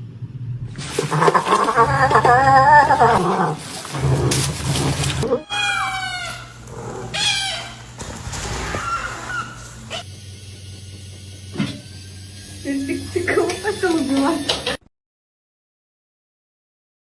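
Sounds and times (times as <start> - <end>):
cat meowing: 5.2 - 7.9.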